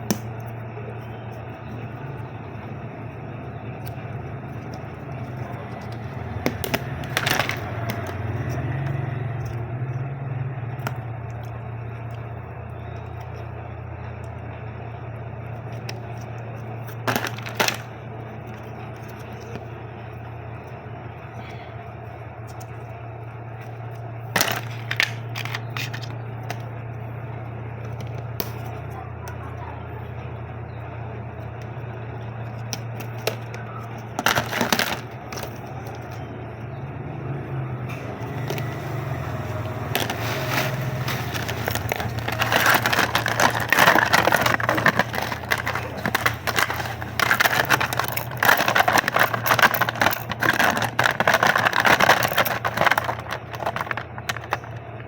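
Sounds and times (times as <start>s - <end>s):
steady low hum: 0.0s - 55.0s
plastic packaging crinkling: 3.7s - 9.1s, 15.6s - 19.7s, 24.4s - 26.7s, 33.0s - 36.2s, 38.1s - 55.0s.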